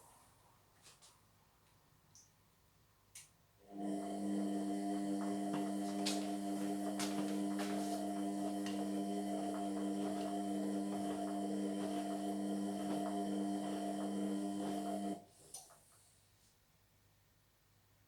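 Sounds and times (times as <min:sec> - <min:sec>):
washing machine motor hum: 0:03.6 - 0:15.3.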